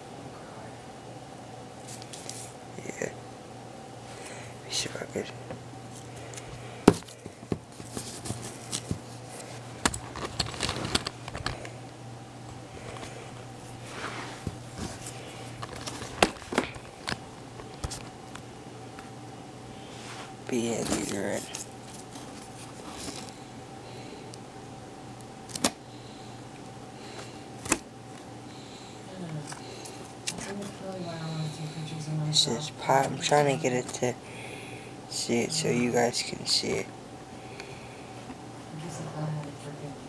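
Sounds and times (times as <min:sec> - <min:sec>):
low steady hum: 0:00.0 - 0:40.0
handling noise: 0:06.8 - 0:11.8, 0:12.5 - 0:18.4.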